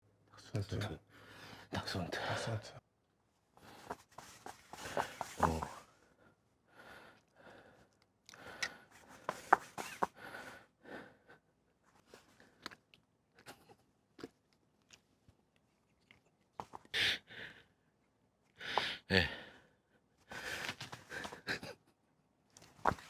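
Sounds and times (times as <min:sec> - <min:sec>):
man's breathy puffs: 0:03.6 - 0:11.3, 0:18.6 - 0:19.6, 0:20.2 - 0:21.5
clicking mouth noises: 0:07.2 - 0:08.8.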